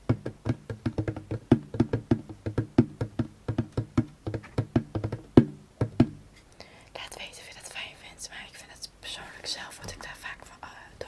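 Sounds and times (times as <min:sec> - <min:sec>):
hand drum taps: 0:00.0 - 0:06.4.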